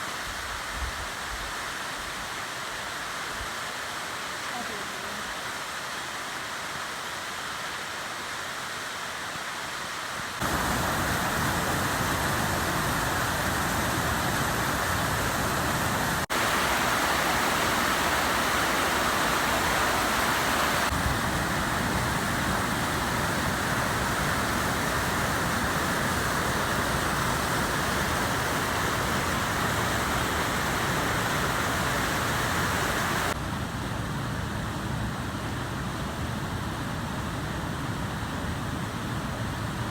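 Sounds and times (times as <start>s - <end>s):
waterfall rushing: 10.4s - 33.4s.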